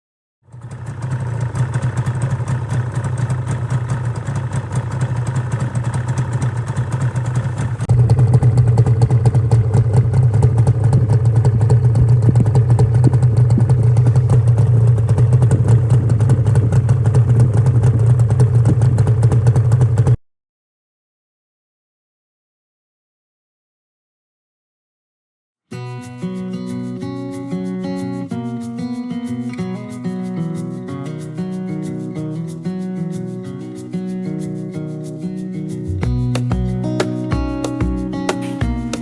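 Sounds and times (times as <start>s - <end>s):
two-stroke motorcycle engine running: 0.4s - 20.2s, 36.0s - 39.0s.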